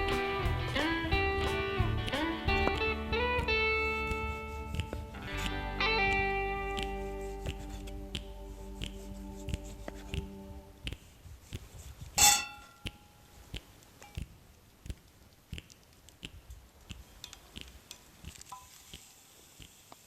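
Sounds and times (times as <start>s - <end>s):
light clicks and taps: 2.6s - 20.0s
metal cookware clang: 12.2s - 12.8s
faint ping: 12.2s - 12.9s.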